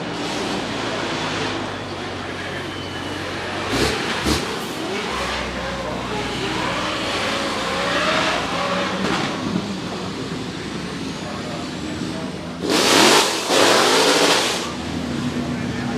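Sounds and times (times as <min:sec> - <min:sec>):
car engine revving hard: 0:03.3 - 0:10.3, 0:12.5 - 0:15.4
sharp engine bangs: 0:03.5 - 0:05.4, 0:12.5 - 0:14.9.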